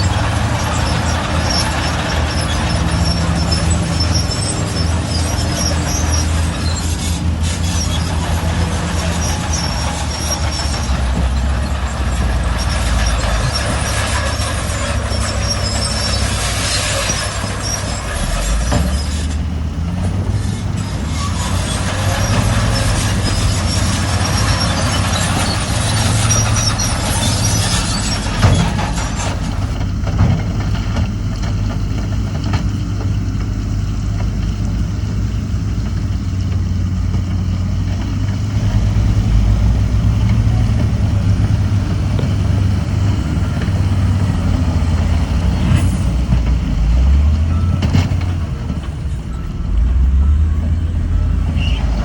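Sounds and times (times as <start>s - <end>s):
diesel machinery engine drone: 0.0s - 52.0s.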